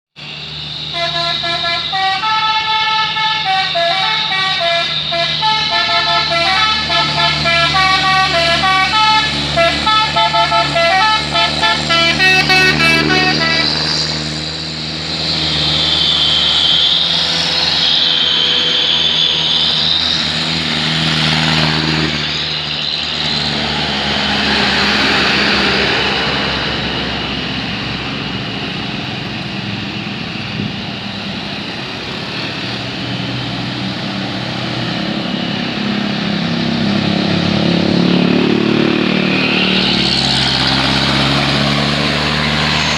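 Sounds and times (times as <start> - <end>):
road noise: 0.0 - 42.9
truck engine running: 0.2 - 42.9
truck musical horn melody: 0.6 - 14.5.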